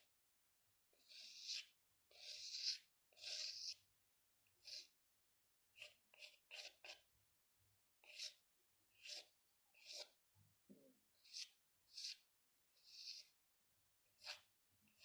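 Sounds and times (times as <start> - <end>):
pencil scratching on paper: 0.9 - 3.9, 4.5 - 5.0, 5.7 - 7.1, 8.0 - 10.2, 11.2 - 13.4, 14.1 - 15.0.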